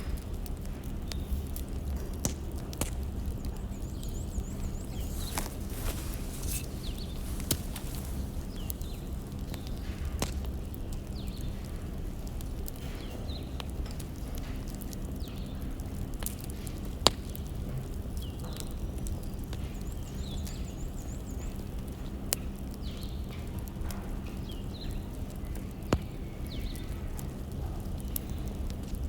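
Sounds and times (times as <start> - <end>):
firewood burning with crackles: 0.0 - 29.0
sharp pops of burning wood: 3.8 - 11.3.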